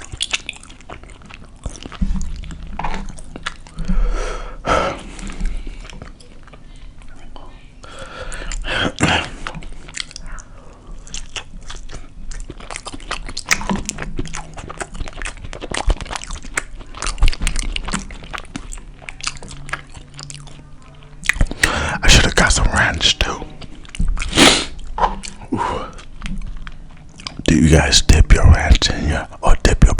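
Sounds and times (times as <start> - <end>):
wet mouth clicks: 0.0 - 3.9, 8.3 - 20.6, 21.2 - 27.5
chewing and biting food: 0.0 - 4.0, 5.0 - 7.2, 8.2 - 28.8.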